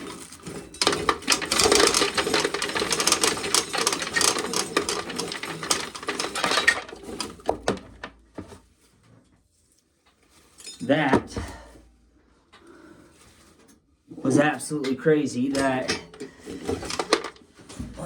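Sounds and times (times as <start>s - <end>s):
corn sheller clattering: 0.0s - 8.5s, 14.3s - 17.4s.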